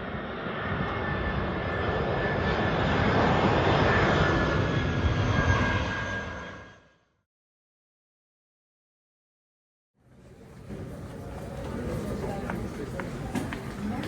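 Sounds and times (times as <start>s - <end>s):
airliner engines running: 0.0s - 7.2s, 10.0s - 14.0s.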